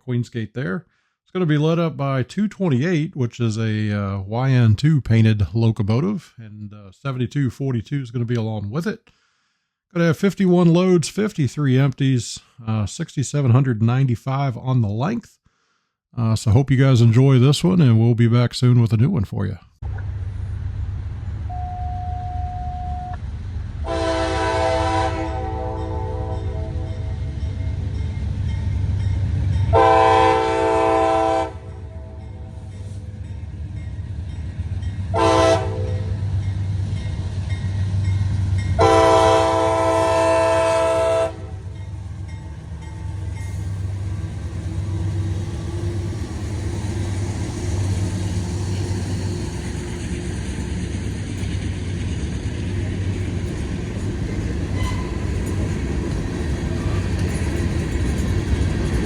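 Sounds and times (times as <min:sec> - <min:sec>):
diesel locomotive rumble: 0:19.8 - 0:59.0
freight train passing: 0:19.8 - 0:59.0
locomotive air horn: 0:21.5 - 0:23.2, 0:23.8 - 0:27.1, 0:29.7 - 0:32.6, 0:35.1 - 0:36.2, 0:38.8 - 0:41.8, 0:54.8 - 0:55.2.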